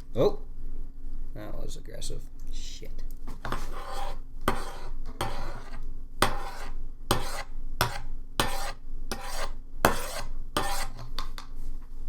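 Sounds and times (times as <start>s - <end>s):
utensil scraping a bowl: 3.4s - 11.1s.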